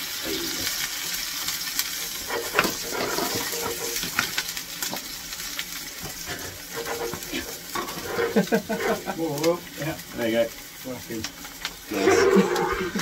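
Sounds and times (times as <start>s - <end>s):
steady hiss: 0.0s - 13.0s
vegetables sizzling on hot shovel: 0.0s - 13.0s
clicks and scrapes of shovel: 2.2s - 4.3s.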